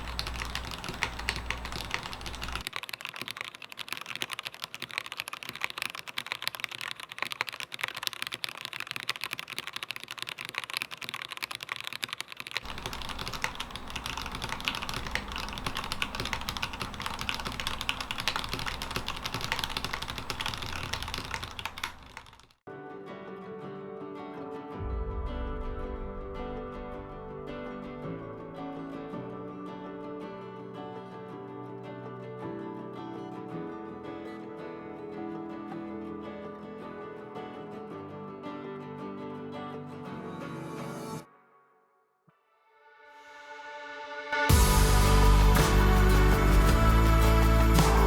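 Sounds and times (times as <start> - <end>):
keyboard typing clicks: 0.0 - 22.6
soft plucked guitar music: 22.7 - 40.4.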